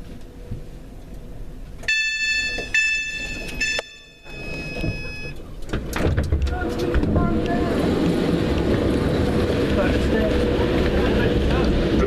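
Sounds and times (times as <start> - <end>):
low station rumble: 0.0 - 12.0
high-pitched electronic two-note tone: 1.9 - 5.4.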